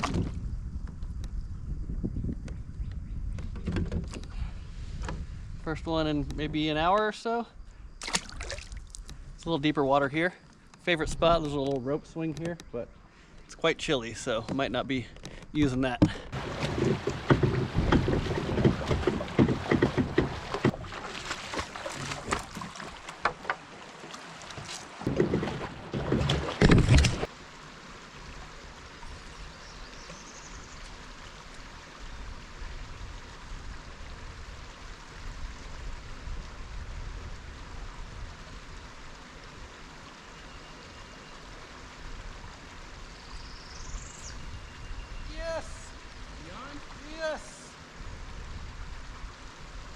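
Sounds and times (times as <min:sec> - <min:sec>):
rush of moving water: 0:08.0 - 0:09.1, 0:15.8 - 0:49.9
water sloshing around a kayak: 0:08.0 - 0:09.2, 0:14.2 - 0:36.3.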